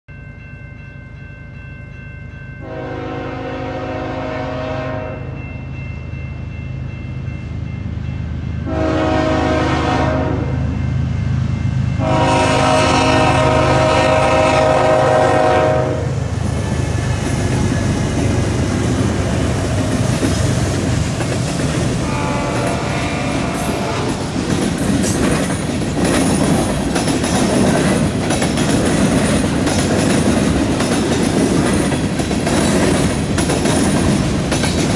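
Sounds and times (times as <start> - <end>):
train horn blasts: 2.6 - 5.4, 8.6 - 10.8, 12.0 - 16.3, 21.9 - 24.3
diesel locomotive rumble: 8.2 - 34.9
train wheels clattering over rail joints: 23.8 - 34.9.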